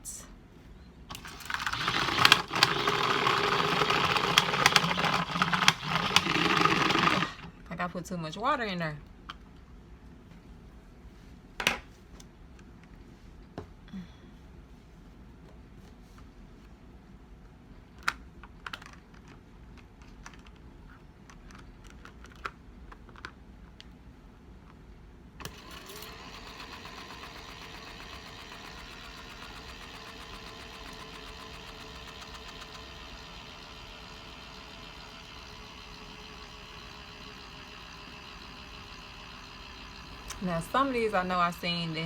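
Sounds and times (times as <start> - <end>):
small motor running: 1.1 - 7.5, 25.4 - 41.6.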